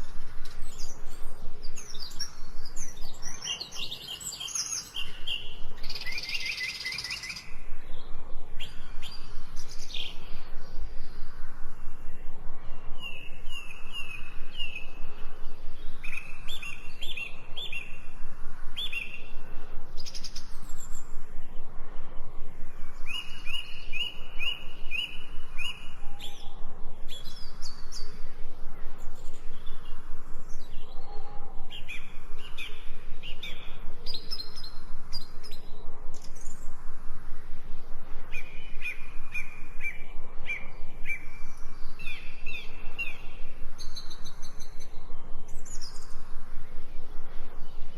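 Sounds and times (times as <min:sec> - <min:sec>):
birds chirping: 0:00.0 - 0:18.2.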